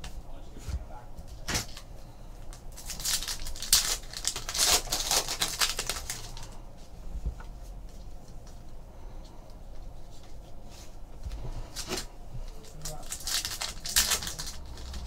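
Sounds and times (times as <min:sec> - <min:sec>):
wrappers crinkling and tearing: 0:01.3 - 0:01.9, 0:02.5 - 0:06.6, 0:11.7 - 0:15.0.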